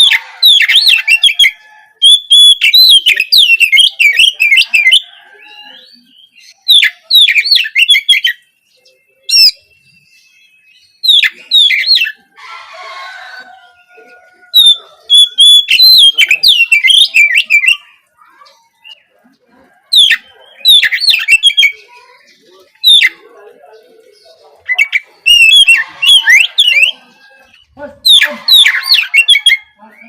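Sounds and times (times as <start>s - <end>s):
bird singing chirps and whistles: 0.0s - 12.2s, 14.6s - 18.0s, 20.0s - 21.9s, 22.7s - 23.3s, 24.6s - 30.0s.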